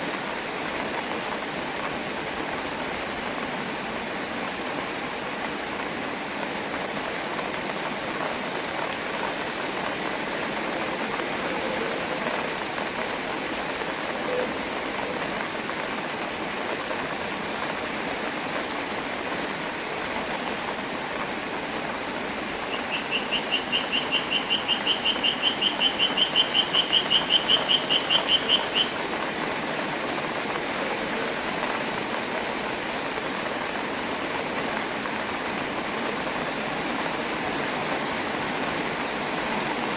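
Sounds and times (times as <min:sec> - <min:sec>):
rain falling: 0:00.0 - 0:39.9
fast trill of high chirps: 0:22.7 - 0:29.0.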